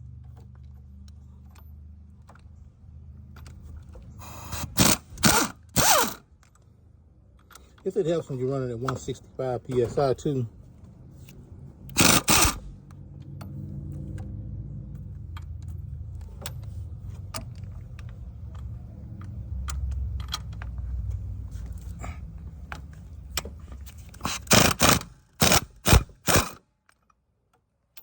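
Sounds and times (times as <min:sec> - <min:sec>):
air impact wrench hammering: 0:04.2 - 0:06.2, 0:11.9 - 0:12.7, 0:24.2 - 0:26.6
small metallic clicks: 0:15.1 - 0:22.0.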